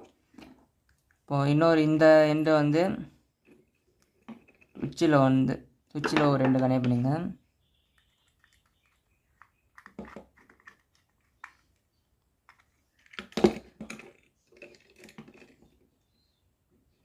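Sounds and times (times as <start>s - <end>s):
hands working wires into terminals: 7.9s - 15.8s.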